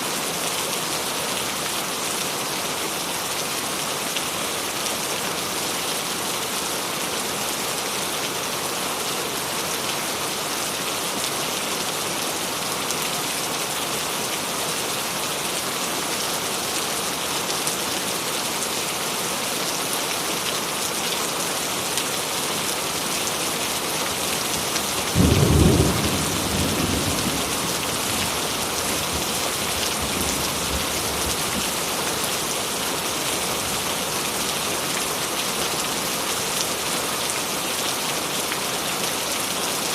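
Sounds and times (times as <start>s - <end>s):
steady rain hiss: 0.0s - 39.9s
loud thunderclap rumbling: 25.2s - 30.8s.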